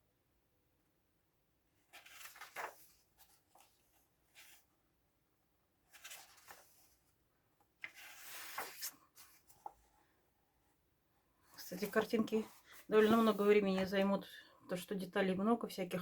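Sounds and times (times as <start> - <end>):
book pages rustling: 1.8 - 4.8, 5.8 - 10.1, 11.6 - 14.1.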